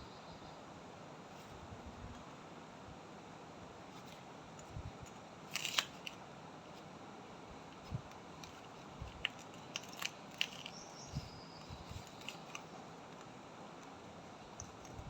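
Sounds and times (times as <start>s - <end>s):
parrot chewing with crunches: 5.5s - 6.2s, 7.8s - 15.0s.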